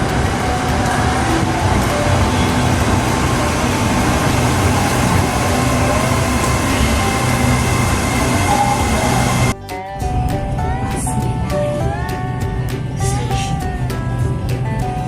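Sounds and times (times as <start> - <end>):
electric train rumbling: 0.0 - 9.6.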